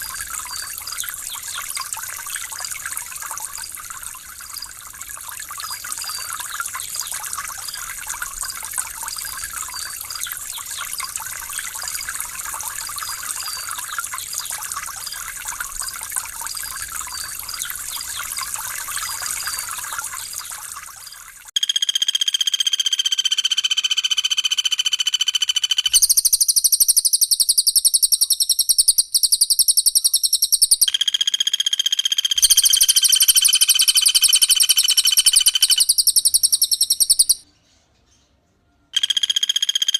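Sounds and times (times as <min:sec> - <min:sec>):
recorded bird song: 0:00.0 - 0:15.4, 0:16.4 - 0:21.3, 0:23.3 - 0:30.9, 0:32.4 - 0:39.1
trickling water: 0:00.0 - 0:21.6, 0:25.8 - 0:31.0, 0:32.2 - 0:37.5
faint chirping: 0:25.5 - 0:30.9, 0:32.4 - 0:39.1.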